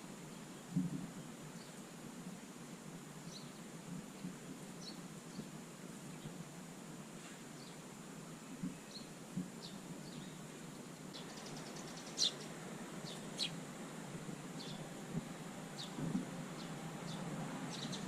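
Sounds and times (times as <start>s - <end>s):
sparrows chirping: 3.2s - 6.4s, 7.2s - 7.8s, 8.7s - 18.0s.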